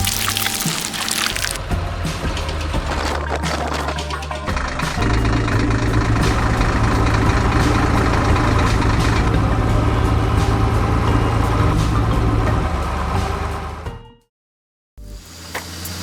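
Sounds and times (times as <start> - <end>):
vehicle engine idling: 4.4 - 13.8.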